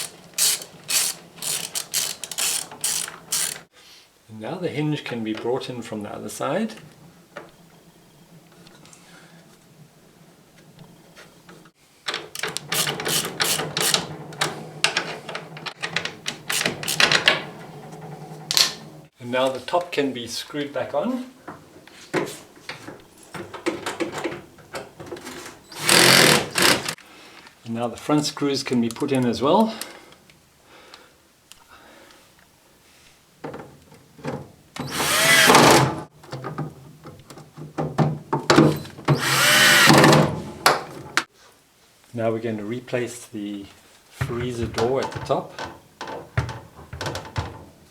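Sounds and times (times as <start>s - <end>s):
cordless drill driving screws: 0.0s - 3.6s, 12.4s - 14.1s, 15.9s - 17.4s, 25.6s - 27.0s, 34.8s - 36.0s, 39.1s - 40.2s
metal and plastic parts clicking and rattling: 0.0s - 3.7s, 12.0s - 18.8s.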